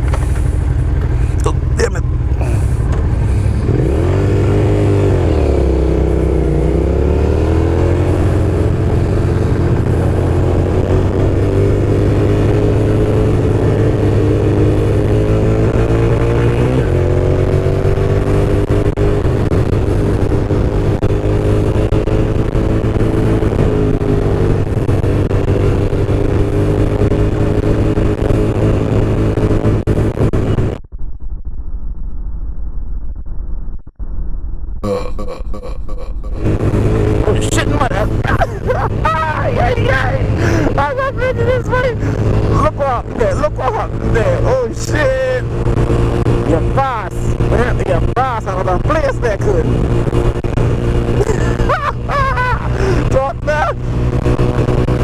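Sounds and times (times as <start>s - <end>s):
motorcycle engine running: 0.0s - 31.7s, 34.6s - 55.0s.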